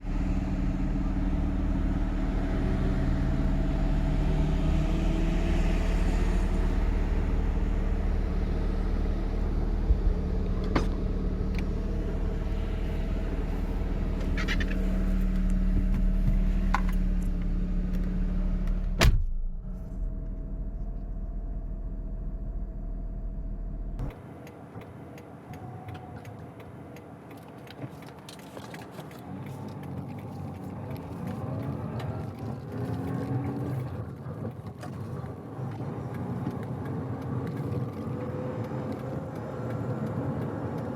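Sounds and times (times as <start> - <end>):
car engine idling: 0.0 - 32.7
car door shutting: 9.8 - 11.7, 18.7 - 19.6.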